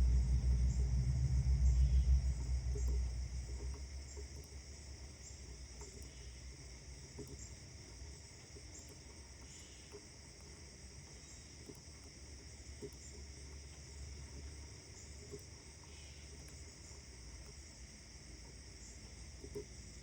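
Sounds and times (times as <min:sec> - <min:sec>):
low distant rumble: 0:00.0 - 0:07.0
steady high hiss: 0:00.0 - 0:08.4.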